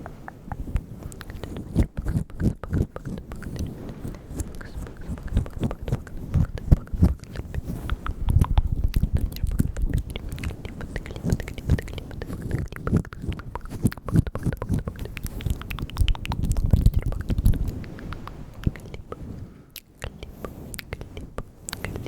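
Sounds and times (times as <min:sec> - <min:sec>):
wet tongue and lip clicks: 0:00.0 - 0:22.0.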